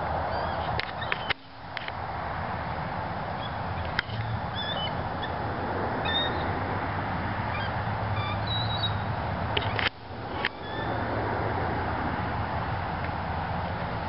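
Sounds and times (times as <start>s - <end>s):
steady rushing noise: 0.0s - 14.0s
short high bird calls: 4.5s - 5.3s, 7.5s - 9.8s.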